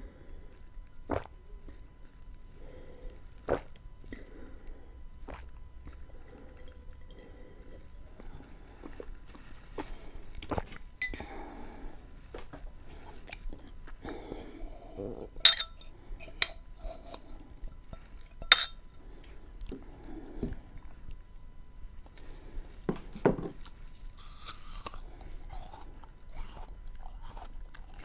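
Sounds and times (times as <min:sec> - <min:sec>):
cutlery clinking against dish: 0:15.4 - 0:15.8, 0:18.4 - 0:18.8
chewing and mouth sounds: 0:23.6 - 0:28.0.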